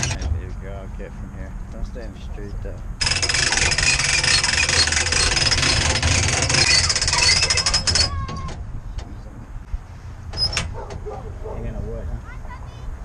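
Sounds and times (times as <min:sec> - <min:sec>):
electric winch running: 0:03.0 - 0:08.2.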